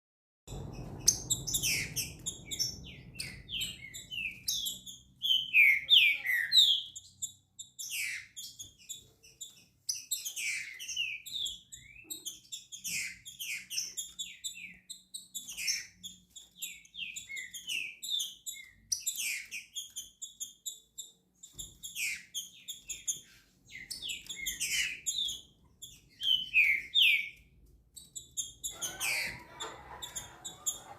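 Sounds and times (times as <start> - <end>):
bird singing whistled notes: 26.2 - 27.4.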